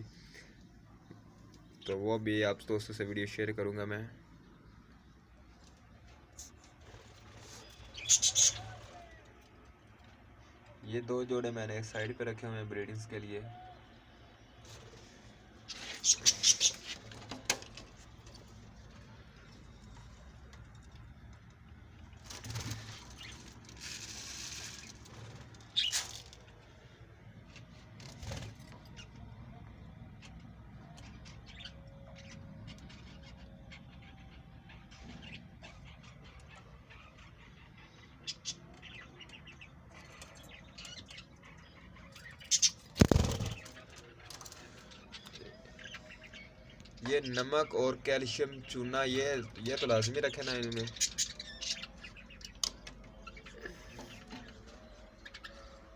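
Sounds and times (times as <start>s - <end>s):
budgerigars chirping: 7.8s - 8.8s, 15.7s - 17.0s, 35.0s - 43.8s.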